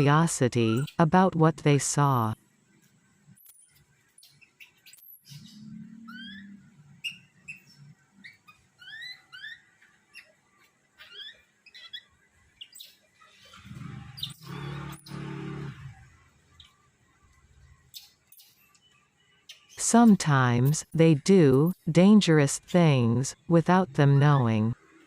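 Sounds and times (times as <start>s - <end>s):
small animals chirping: 4.2s - 15.3s.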